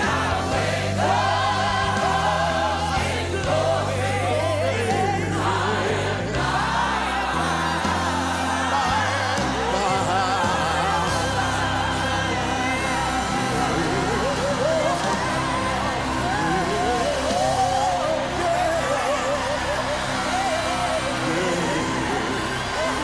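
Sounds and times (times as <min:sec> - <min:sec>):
bass line: 0:00.0 - 0:23.0
voices singing in harmony: 0:00.0 - 0:23.0.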